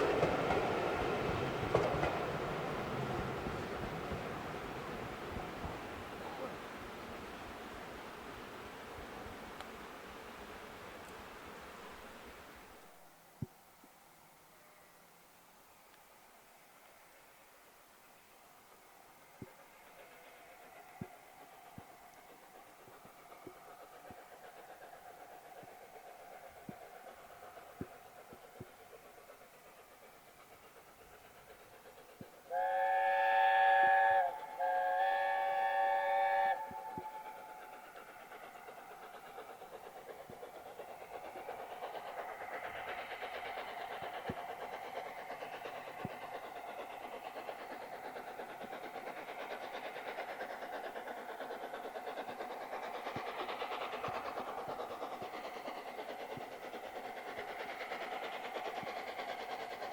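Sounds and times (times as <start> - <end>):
train running: 0.0 - 59.9
steam locomotive whistle blasts: 32.5 - 37.5.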